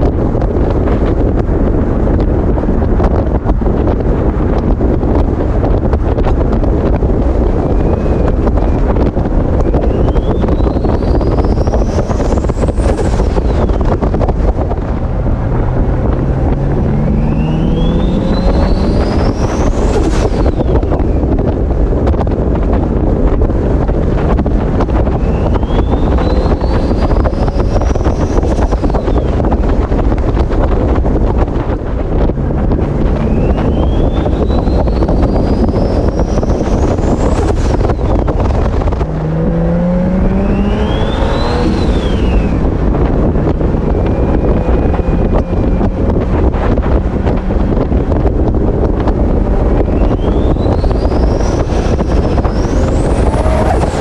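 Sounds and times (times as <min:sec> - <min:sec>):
engine rumble: 0:00.0 - 0:54.0
wind buffeting on microphone: 0:00.0 - 0:54.0
turbocharger whistle spooling up: 0:17.0 - 0:20.8, 0:25.2 - 0:29.3, 0:33.2 - 0:37.1, 0:40.2 - 0:42.6, 0:49.9 - 0:54.0.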